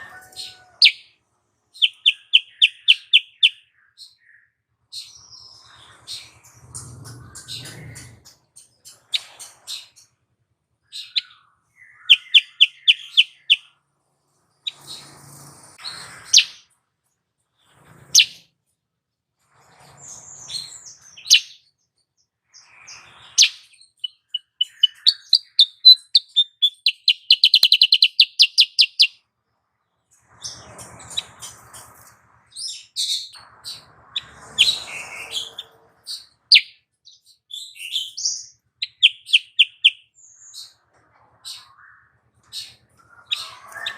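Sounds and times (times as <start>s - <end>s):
bird trill: 0.0s - 10.1s, 10.8s - 13.8s, 14.6s - 16.7s, 17.7s - 18.5s, 20.2s - 21.8s, 22.6s - 29.2s, 30.3s - 40.8s, 41.4s - 43.9s
bird chirps and whistles: 1.8s - 3.6s, 11.0s - 13.6s, 23.2s - 29.2s, 37.6s - 40.0s.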